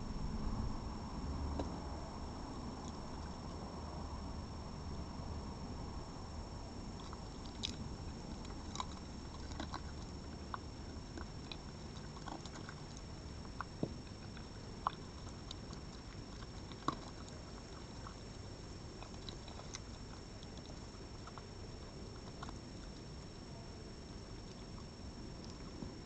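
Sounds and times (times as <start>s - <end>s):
steady background hiss: 0.0s - 26.0s
animal chewing food: 2.4s - 3.6s, 6.9s - 26.0s.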